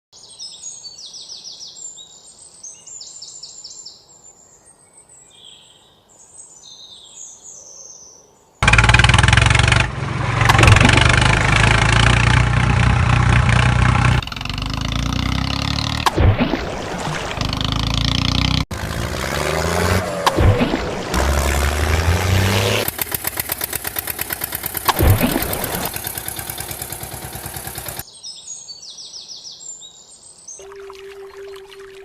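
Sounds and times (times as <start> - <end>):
birds chirping: 14.1 - 32.0.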